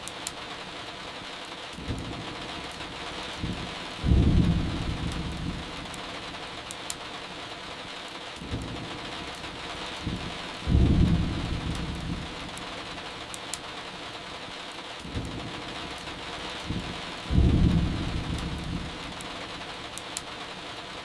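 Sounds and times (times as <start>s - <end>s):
steady rain: 0.0s - 21.0s
firewood crackling: 1.6s - 14.2s, 14.8s - 20.6s
low thunder rumbles: 1.8s - 6.4s, 8.4s - 13.0s, 15.0s - 19.8s.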